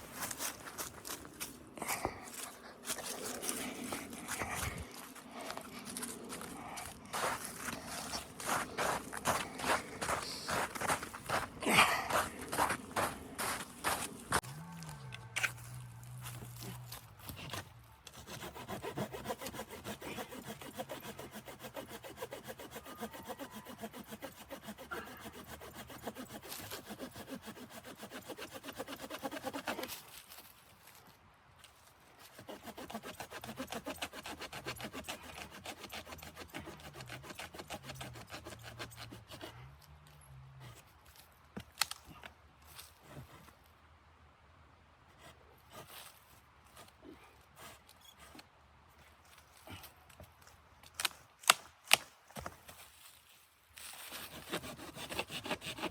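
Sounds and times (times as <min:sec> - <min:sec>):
hand saw cutting wood: 0:02.3 - 0:14.4, 0:17.3 - 0:30.0, 0:32.2 - 0:39.7, 0:53.9 - 0:55.9.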